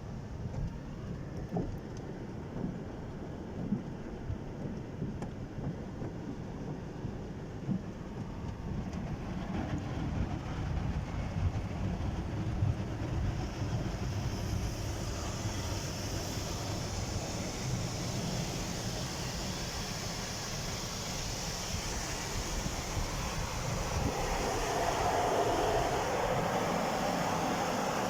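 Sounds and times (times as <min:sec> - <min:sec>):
car wash machinery rumble: 0:09.6 - 0:28.0
high hiss: 0:13.0 - 0:28.0.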